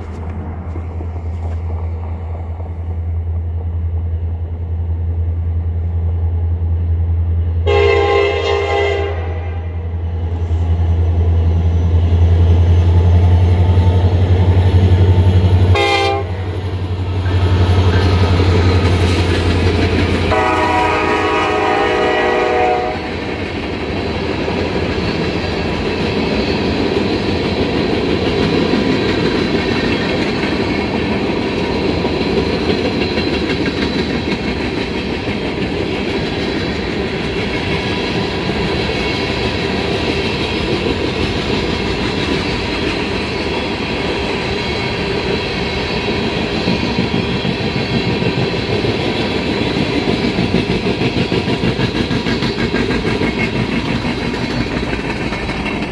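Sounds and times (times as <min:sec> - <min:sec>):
train wheels clickety-clack: 0:00.0 - 0:04.8, 0:10.2 - 0:55.9
diesel locomotive engine: 0:00.0 - 0:55.9
train horn: 0:07.6 - 0:10.0, 0:15.6 - 0:16.7, 0:20.3 - 0:23.2.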